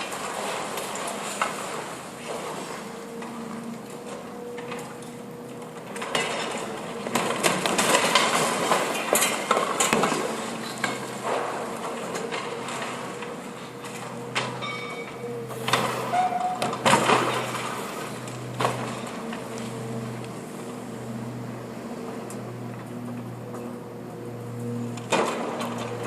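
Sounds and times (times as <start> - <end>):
excavator hum: 0.0 - 26.0
concrete crunching and clinking: 3.9 - 20.5.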